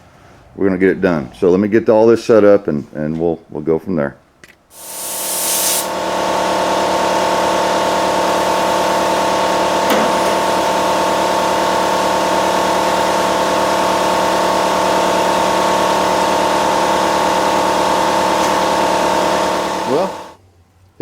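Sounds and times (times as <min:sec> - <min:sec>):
air compressor hum: 0:04.7 - 0:20.4
sandblaster hissing: 0:04.8 - 0:06.6, 0:18.3 - 0:20.4.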